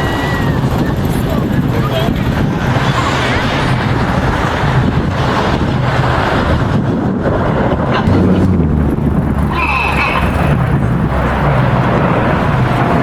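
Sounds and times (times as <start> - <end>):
jet engines rumbling: 0.0 - 13.0
wind on microphone: 0.0 - 13.0
high-pitched wavering sound: 8.1 - 11.1.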